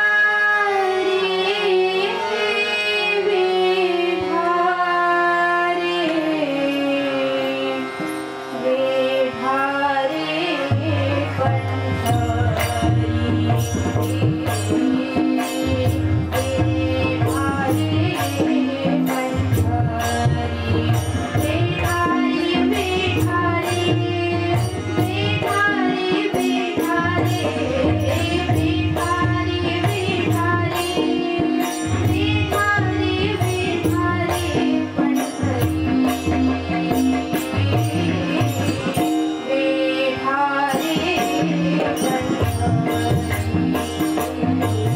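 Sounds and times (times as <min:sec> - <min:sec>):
group singing devotional song: 0:01.1 - 0:07.8, 0:14.2 - 0:42.8
percussion steady beat: 0:05.7 - 0:44.9.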